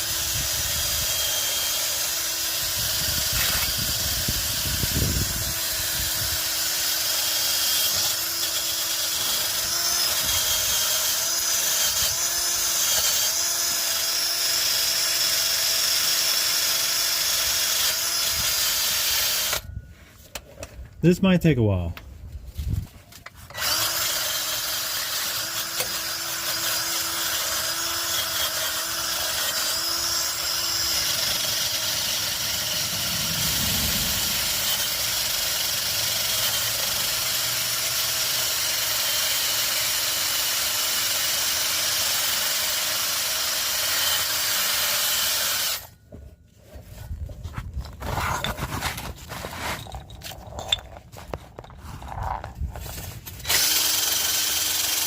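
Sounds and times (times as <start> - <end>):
rotary power tool whining: 0.0 - 19.7, 23.2 - 47.0, 47.8 - 55.0
scrapes: 46.1 - 53.5.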